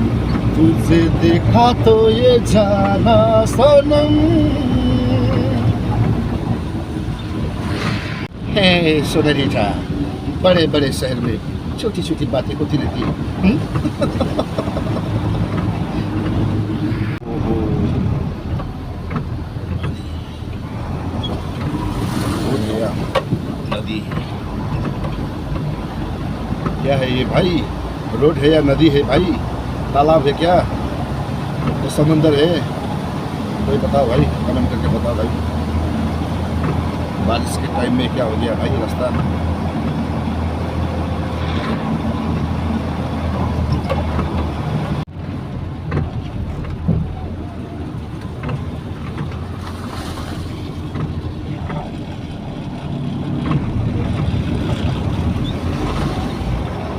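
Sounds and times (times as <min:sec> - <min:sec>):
road noise: 0:00.0 - 0:56.9
truck engine running: 0:00.0 - 0:56.9
cab knocks and rattles: 0:11.0 - 0:16.7, 0:18.2 - 0:41.0, 0:41.6 - 0:56.9.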